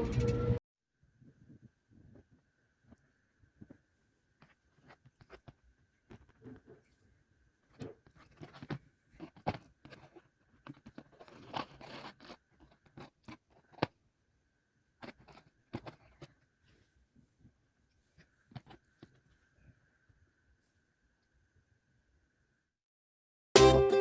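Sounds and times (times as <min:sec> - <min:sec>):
crunching and scraping: 0:07.7 - 0:13.9.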